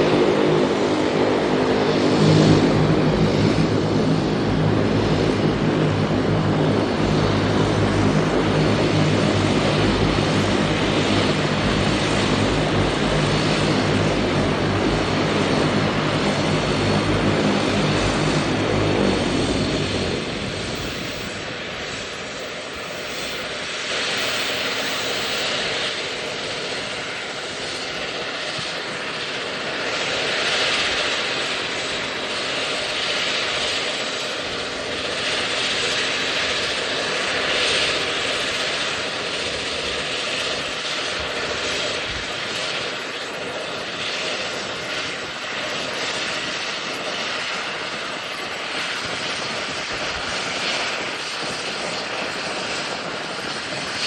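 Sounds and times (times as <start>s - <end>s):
airliner engines rushing: 0.0s - 54.0s
faint steady hum: 24.2s - 25.4s.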